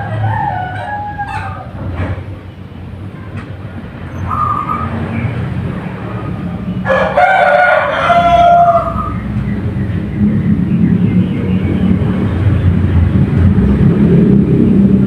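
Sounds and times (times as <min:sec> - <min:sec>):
rooster crowing: 0:00.0 - 0:01.8, 0:06.8 - 0:09.2
steady low hum: 0:08.8 - 0:15.0.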